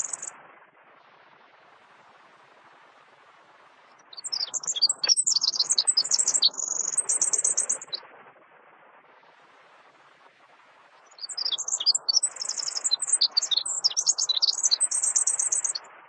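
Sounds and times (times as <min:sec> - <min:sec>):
songbird chirping and twittering: 0:00.0 - 0:00.3, 0:04.0 - 0:08.0, 0:11.0 - 0:15.9
faint background hiss: 0:00.0 - 0:16.0.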